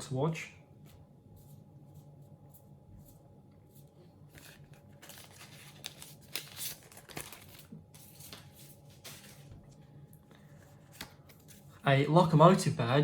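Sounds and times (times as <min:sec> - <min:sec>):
foil wrapper crinkling: 0:04.3 - 0:09.5.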